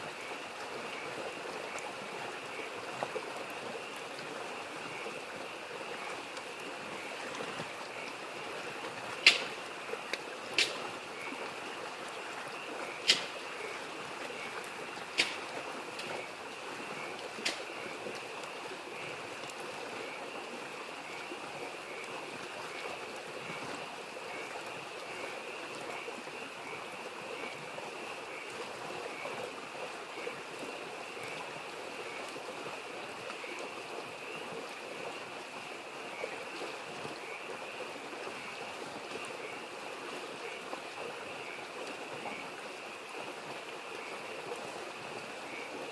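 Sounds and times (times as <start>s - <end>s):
babbling mountain stream: 0.0s - 45.9s
frogs calling in chorus: 7.8s - 11.4s, 12.6s - 18.0s
wood fire popping: 9.2s - 9.6s, 10.5s - 10.8s, 13.0s - 13.4s, 15.2s - 15.4s, 17.4s - 17.6s.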